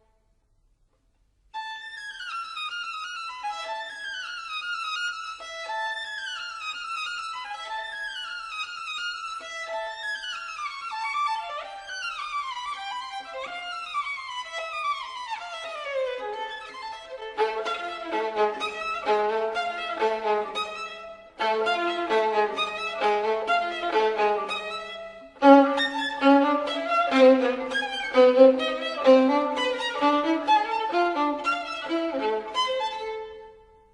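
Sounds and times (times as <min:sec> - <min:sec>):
violin music descending runs: 0:17.1 - 0:33.2.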